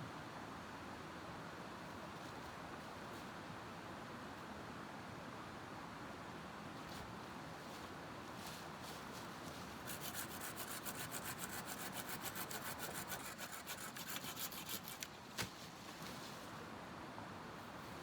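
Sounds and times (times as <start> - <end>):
hand saw cutting wood: 9.8 - 15.1.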